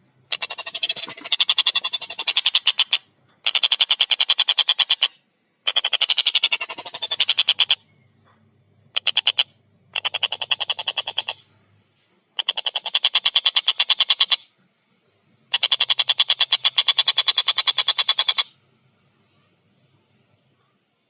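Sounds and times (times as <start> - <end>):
kingfisher rattling call: 0.3 - 7.8, 8.9 - 11.4, 15.5 - 18.5.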